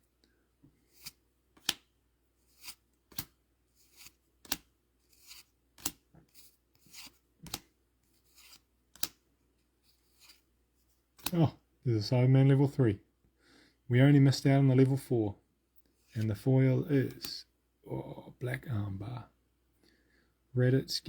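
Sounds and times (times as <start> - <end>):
cards sliding rustle: 0.7 - 11.4, 15.8 - 17.4
trading cards snapping: 1.0 - 1.9, 2.6 - 6.0, 6.9 - 7.7, 8.4 - 9.2, 11.2 - 11.4.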